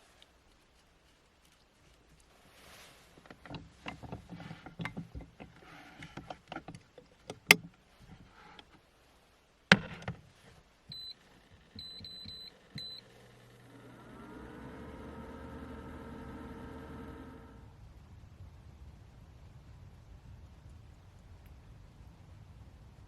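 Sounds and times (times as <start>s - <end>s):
electronic appliance beeping: 10.9s - 17.5s.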